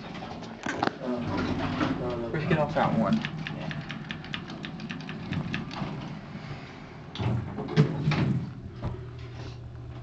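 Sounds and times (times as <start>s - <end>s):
steady low hum: 0.1s - 10.0s
elevator sliding doors moving: 1.1s - 8.6s.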